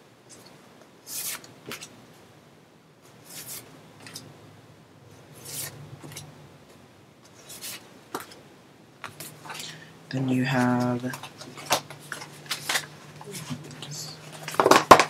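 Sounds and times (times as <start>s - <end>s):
photo cards rustling: 7.3s - 8.4s, 9.0s - 15.0s.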